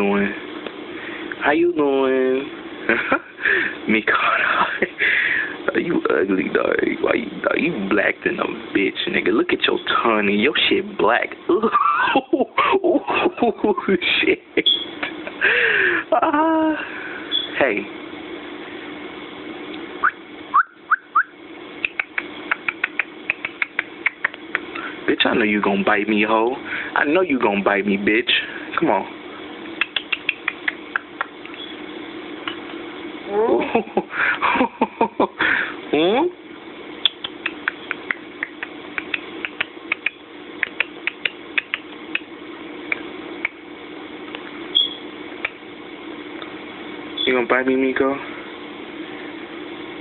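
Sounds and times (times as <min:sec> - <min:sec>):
steady hum: 0:00.0 - 0:50.0
bird chirping: 0:14.6 - 0:15.0, 0:17.3 - 0:17.6, 0:29.8 - 0:31.8, 0:44.7 - 0:45.1
bird beak clicking and tapping: 0:21.8 - 0:24.7, 0:37.2 - 0:42.2.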